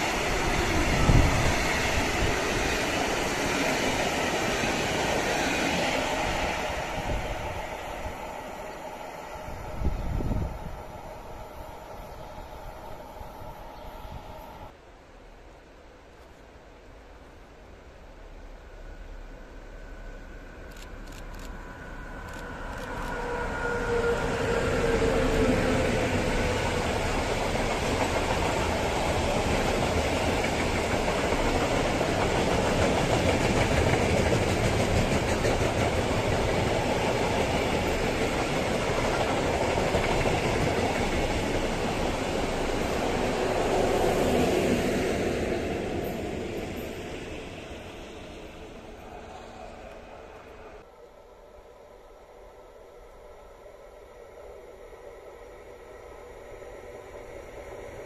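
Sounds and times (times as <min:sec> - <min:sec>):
locomotive whine: 0:00.0 - 0:14.8, 0:19.0 - 0:58.0
wagon wheels rumbling on rail: 0:22.2 - 0:49.1.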